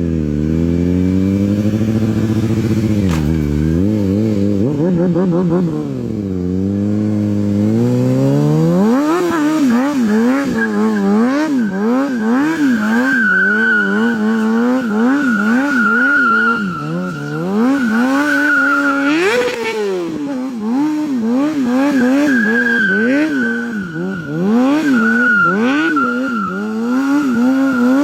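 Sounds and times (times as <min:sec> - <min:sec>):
motorcycle engine revving: 0:00.0 - 0:28.0
high tyre squeal: 0:08.8 - 0:20.4, 0:21.2 - 0:28.0.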